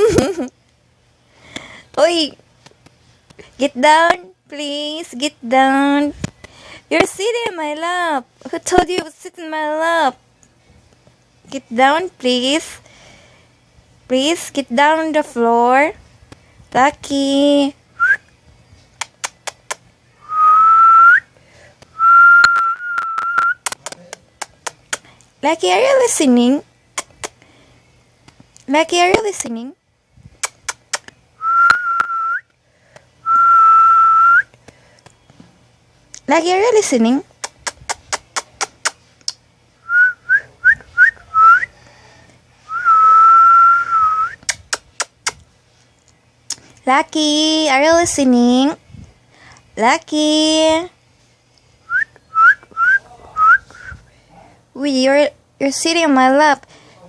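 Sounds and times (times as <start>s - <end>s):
person whistling: 20.2s - 21.3s, 31.4s - 32.5s, 39.8s - 41.7s, 42.7s - 44.5s, 51.9s - 54.0s.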